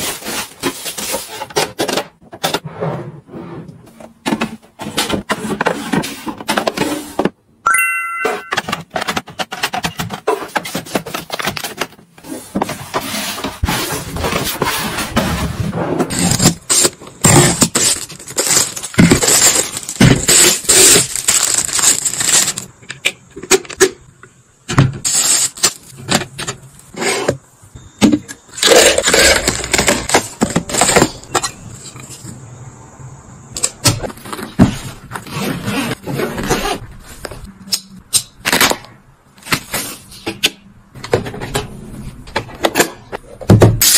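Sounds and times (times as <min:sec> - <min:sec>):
plastic containers knocking and clicking: 0:08.5 - 0:13.0
packets rustling: 0:16.1 - 0:22.7.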